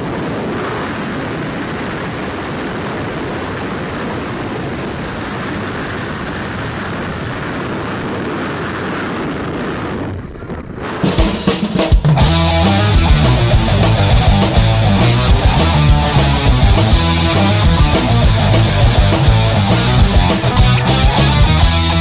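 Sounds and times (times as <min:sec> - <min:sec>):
propeller plane engine: 0:00.0 - 0:22.0
wind noise: 0:00.0 - 0:22.0.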